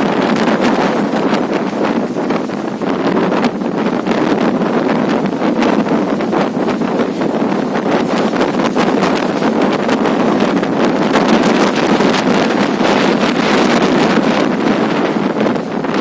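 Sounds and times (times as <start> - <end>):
strong wind on microphone: 0.0 - 16.0
wind crackling: 0.0 - 16.0.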